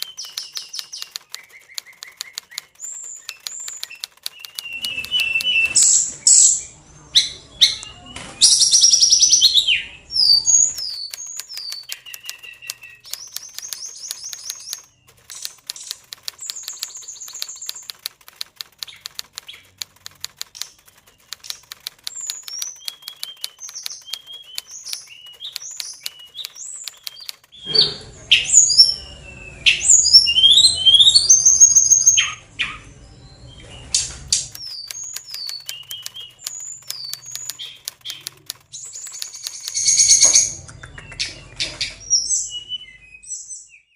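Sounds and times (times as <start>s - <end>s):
rapid dry ticking: 0.0s - 6.0s, 10.7s - 27.6s, 34.3s - 40.6s
bird whistling and chirping: 0.0s - 6.6s, 8.4s - 14.8s, 22.2s - 32.8s.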